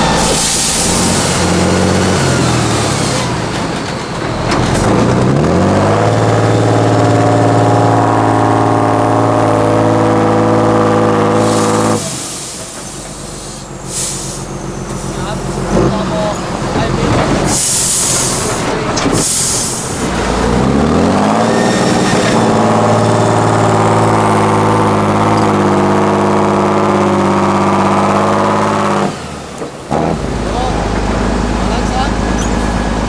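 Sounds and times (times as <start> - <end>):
truck diesel engine revving: 0.0 - 33.0
air hiss bursts: 0.2 - 1.3, 11.4 - 15.6, 17.5 - 20.1.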